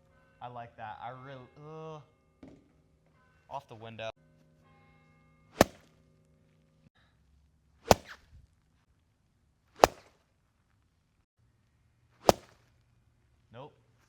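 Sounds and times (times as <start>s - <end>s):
golf club striking balls: 5.6s - 6.0s, 7.8s - 8.5s, 9.8s - 10.2s, 12.2s - 12.7s.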